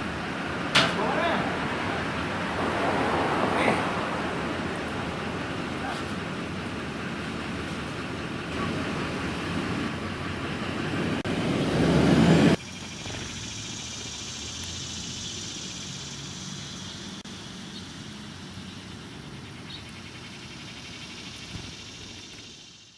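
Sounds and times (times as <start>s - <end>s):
machinery engine running: 0.0s - 22.8s
hiss: 12.3s - 17.8s.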